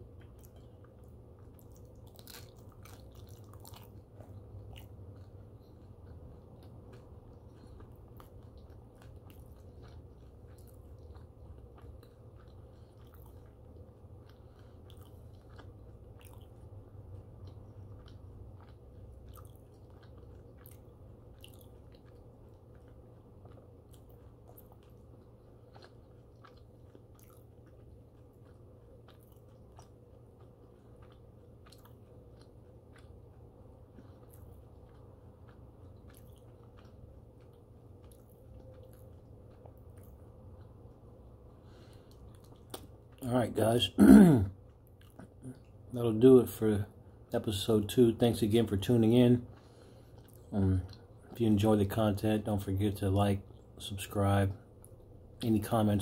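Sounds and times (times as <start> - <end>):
person chewing with mouth closed: 0.0 - 43.2, 44.0 - 46.0, 49.4 - 51.4
steady low hum: 0.0 - 56.0.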